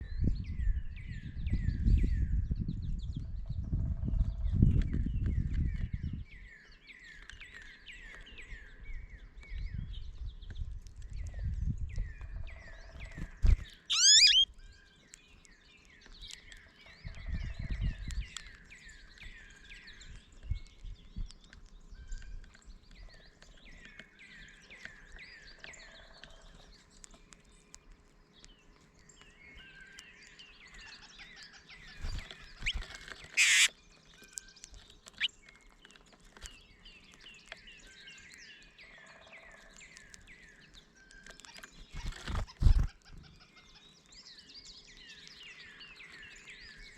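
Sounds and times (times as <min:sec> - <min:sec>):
birds chirping: 0:13.1 - 0:27.7, 0:28.3 - 0:46.9
loud sweeping bird call: 0:13.9 - 0:14.4, 0:33.4 - 0:33.7.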